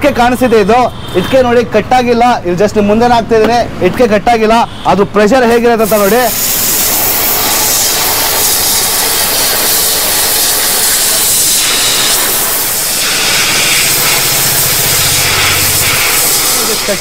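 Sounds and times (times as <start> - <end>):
pressure washer jet hissing: 5.4 - 17.0.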